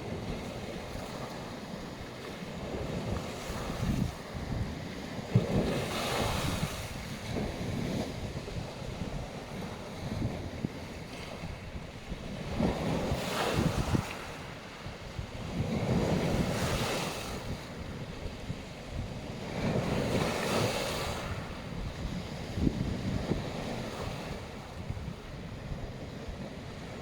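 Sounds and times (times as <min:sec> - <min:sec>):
waves breaking on beach: 0:00.0 - 0:27.0
wind buffeting microphone: 0:00.0 - 0:27.0.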